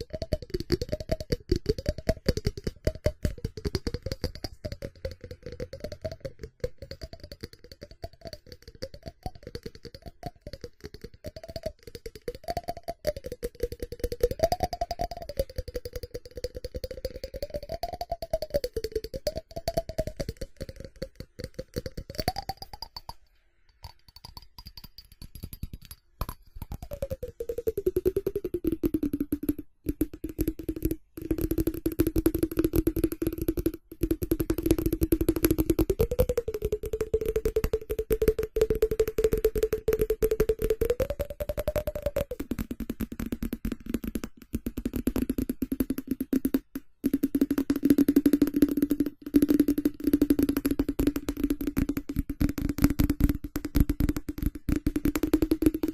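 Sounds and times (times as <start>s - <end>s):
fingernails tapping on ceramic: 11.1s - 55.9s.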